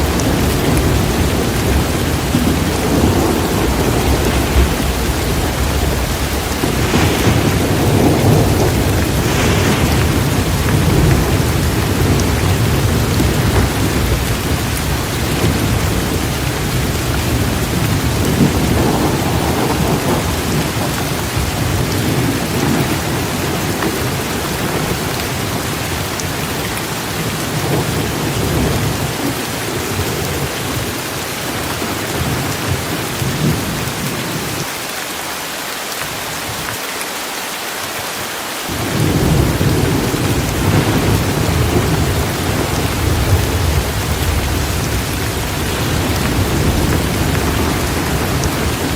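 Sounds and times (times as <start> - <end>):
thunder rumbling: 0.0 - 34.7, 38.7 - 48.9
heavy rain pouring: 0.0 - 48.9.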